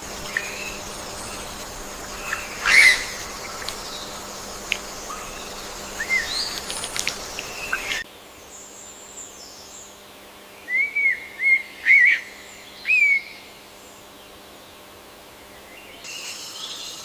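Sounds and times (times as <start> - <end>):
bird whistled notes: 0.3 - 4.1, 5.0 - 8.0
bird chirps and clicks: 0.3 - 8.0.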